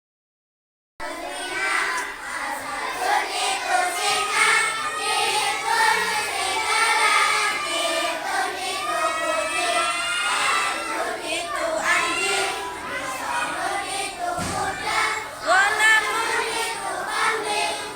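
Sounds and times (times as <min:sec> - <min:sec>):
children singing in chorus: 0:01.0 - 0:17.9.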